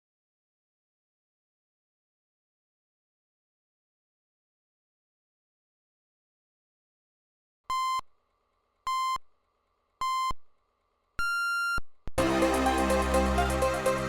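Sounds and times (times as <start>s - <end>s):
electronic countdown beeps: 7.7s - 8.0s, 10.0s - 10.4s
electronic dance music: 12.2s - 14.0s.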